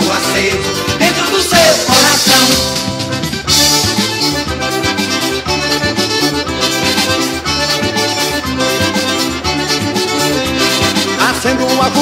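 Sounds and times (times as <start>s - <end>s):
accordion melody: 0.0s - 12.0s
steady percussion beat: 0.0s - 12.0s.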